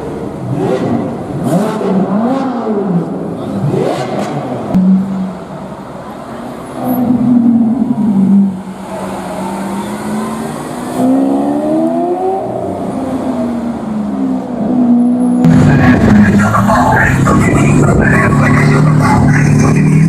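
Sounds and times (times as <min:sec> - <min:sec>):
sports car engine revving: 0:00.0 - 0:05.7, 0:06.8 - 0:20.0.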